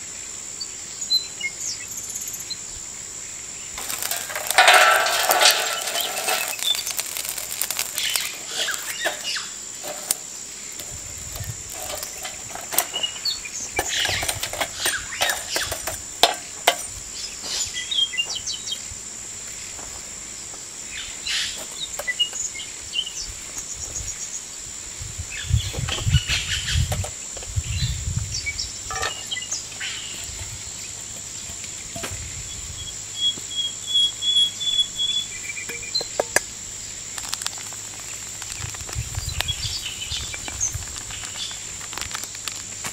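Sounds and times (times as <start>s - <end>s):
high-pitched insect drone: 0.0s - 19.0s, 19.6s - 42.6s
birds chirping: 3.5s - 15.9s, 25.4s - 36.3s.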